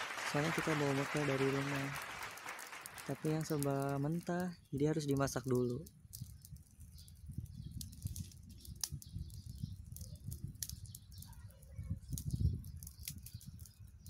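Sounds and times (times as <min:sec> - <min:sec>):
sticks clicking and crackling: 0:02.6 - 0:11.3
wind on microphone: 0:06.0 - 0:14.0.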